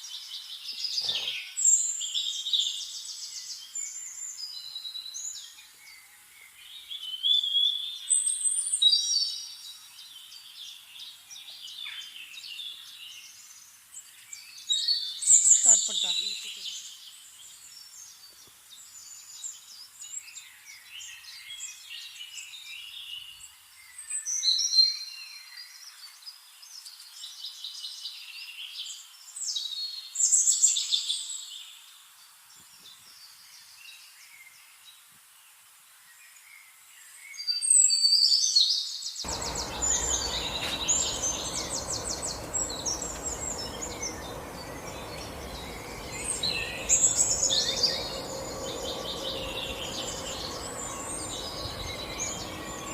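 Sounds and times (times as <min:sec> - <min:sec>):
birds chirping and singing: 0:39.3 - 0:52.9
low background noise: 0:39.3 - 0:52.9.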